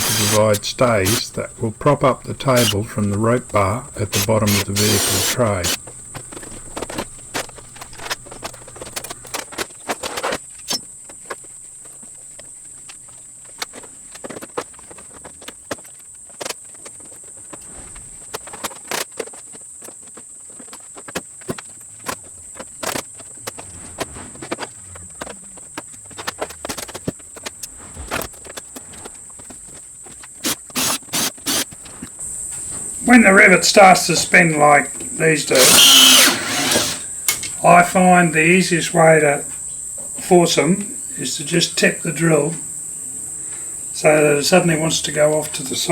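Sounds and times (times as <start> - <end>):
insect drone: 0.0 - 45.9.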